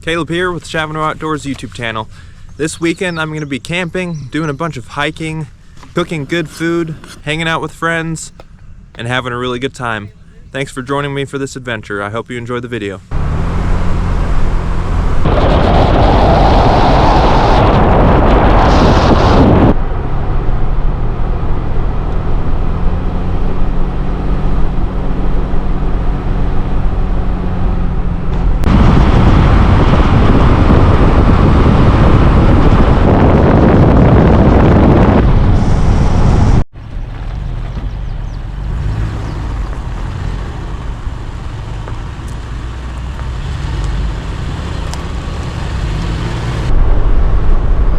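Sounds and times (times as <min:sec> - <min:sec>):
low engine hum: 0:00.0 - 0:47.9
road noise: 0:00.0 - 0:47.9
rushing wind: 0:13.2 - 0:47.9.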